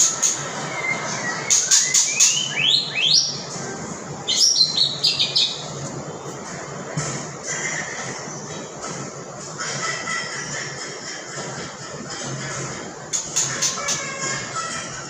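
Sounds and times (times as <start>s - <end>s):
songbird singing: 0.0s - 3.5s, 4.2s - 5.8s.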